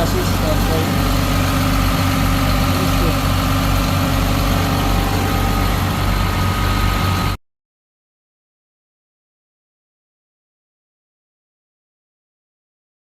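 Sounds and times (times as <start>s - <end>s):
diesel engine running steadily: 0.0s - 7.4s.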